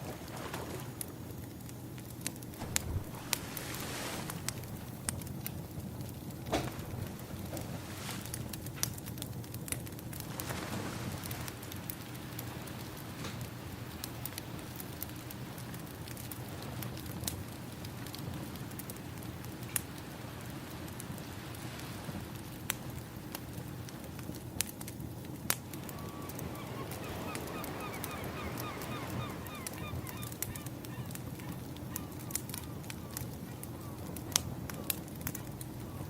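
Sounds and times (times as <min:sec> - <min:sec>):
wood fire crackling and popping: 0:01.0 - 0:36.0
ocean waves: 0:02.6 - 0:05.4, 0:25.6 - 0:32.9
rapid bird calls: 0:25.9 - 0:34.4.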